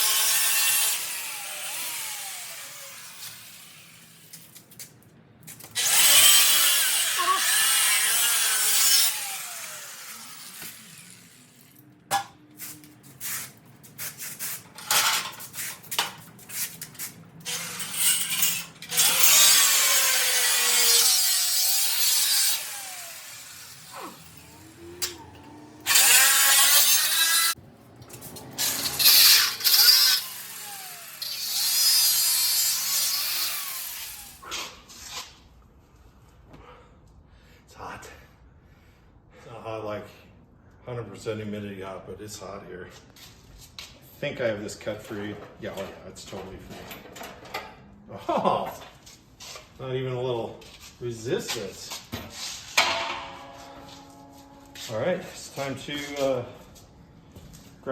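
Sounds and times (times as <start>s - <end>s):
angle grinder cutting steel: 0.0s - 4.4s, 5.8s - 12.2s, 17.4s - 34.5s.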